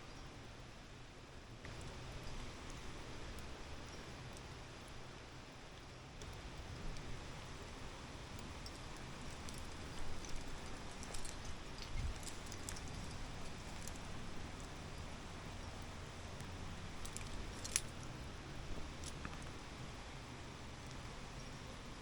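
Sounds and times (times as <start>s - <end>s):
low background hiss: 0.0s - 22.0s
faint rustling: 8.3s - 20.0s.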